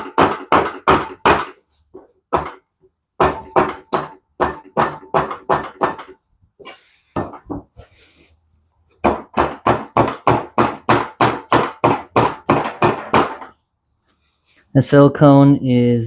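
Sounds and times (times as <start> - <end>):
hammer tapping on metal: 2.3 - 6.2.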